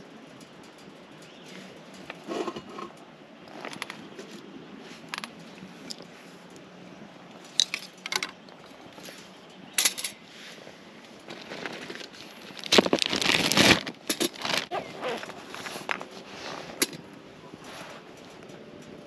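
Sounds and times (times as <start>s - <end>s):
small hard objects clattering: 11.2s - 16.1s.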